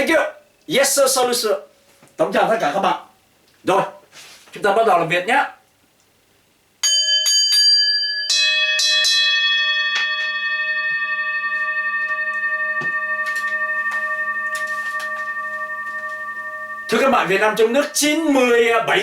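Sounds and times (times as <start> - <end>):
bell strikes ringing: 6.8 - 19.0.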